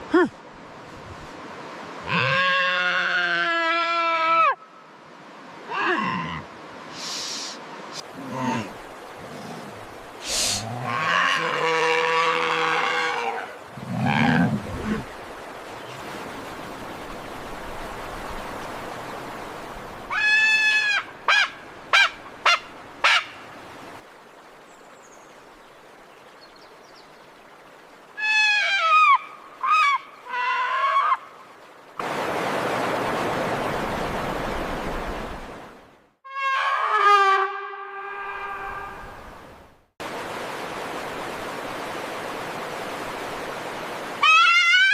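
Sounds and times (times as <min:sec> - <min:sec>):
long hiss: 0:06.9 - 0:11.0
bleat-like condor call: 0:44.2 - 0:44.9.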